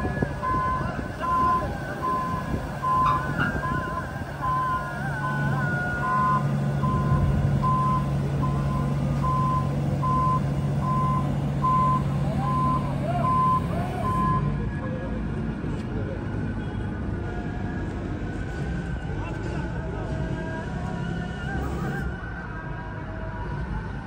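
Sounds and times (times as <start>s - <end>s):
reversing alarm beeping: 0.0s - 14.6s
diesel engine running: 0.0s - 16.6s.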